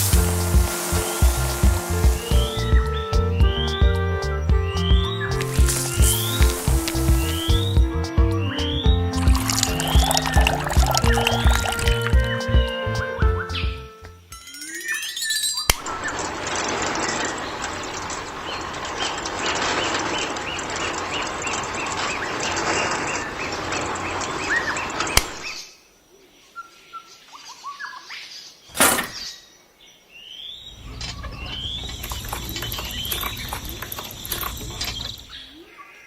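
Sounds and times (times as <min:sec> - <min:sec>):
dense rushing noise: 0:00.0 - 0:03.0, 0:05.4 - 0:07.9
birds chirping: 0:00.0 - 0:13.9, 0:14.8 - 0:36.0.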